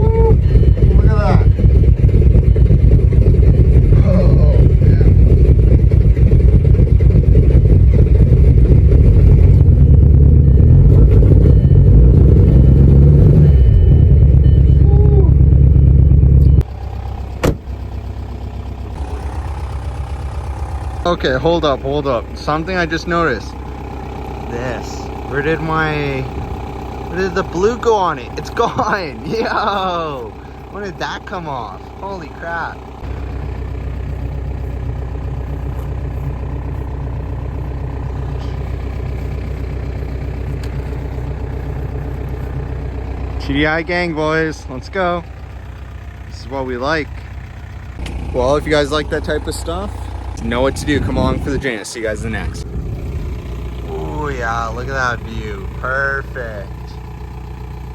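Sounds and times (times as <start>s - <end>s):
diesel engine idling: 0.0s - 57.9s.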